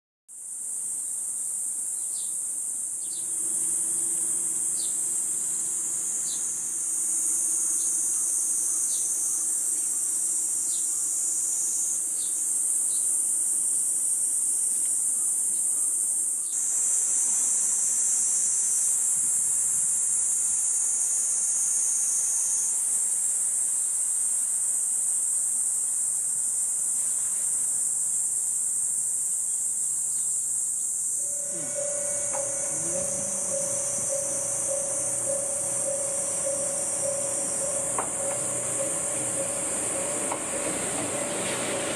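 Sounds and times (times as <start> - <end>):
insect chorus buzzing: 0.3 - 41.9
faint low hum: 31.2 - 41.8.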